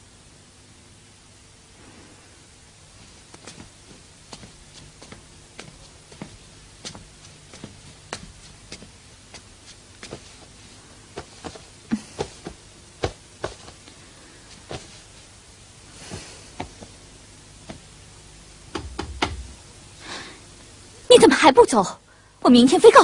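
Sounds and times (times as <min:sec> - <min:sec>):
faint background hiss: 0:00.0 - 0:23.0
sharp knocks and taps: 0:18.7 - 0:19.5.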